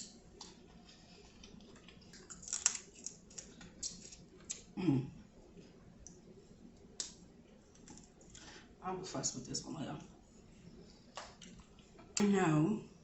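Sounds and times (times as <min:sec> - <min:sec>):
crab shells crackling: 0:01.4 - 0:04.7
person humming: 0:04.8 - 0:05.1.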